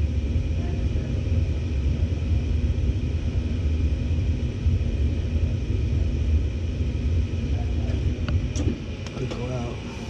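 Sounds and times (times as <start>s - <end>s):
gas furnace burners rumbling: 0.0s - 10.0s.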